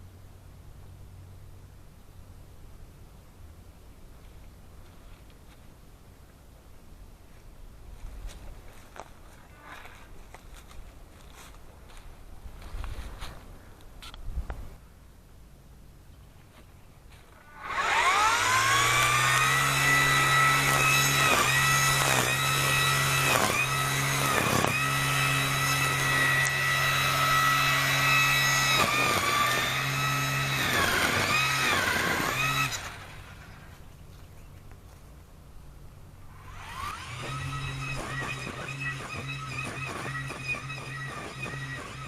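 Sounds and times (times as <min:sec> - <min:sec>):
chainsaw cutting wood: 0:17.4 - 0:33.7, 0:36.3 - 0:42.0.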